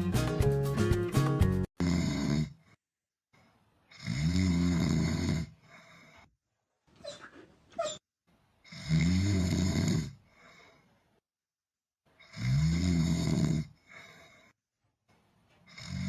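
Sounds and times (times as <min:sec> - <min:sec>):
animal snoring: 0:01.8 - 0:02.8, 0:03.9 - 0:06.3, 0:08.6 - 0:10.8, 0:12.2 - 0:14.5, 0:15.7 - 0:16.0.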